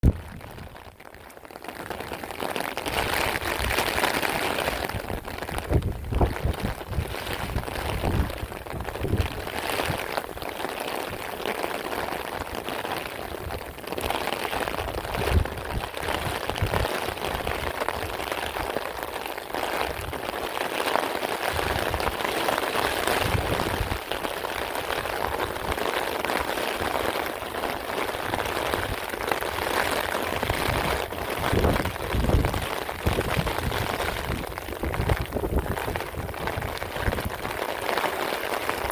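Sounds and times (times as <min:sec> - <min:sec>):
wind buffeting microphone: 0:00.0 - 0:00.9, 0:02.9 - 0:10.4, 0:13.3 - 0:18.7, 0:21.5 - 0:22.2, 0:22.9 - 0:25.9, 0:28.0 - 0:37.8
heavy rain: 0:00.0 - 0:38.9.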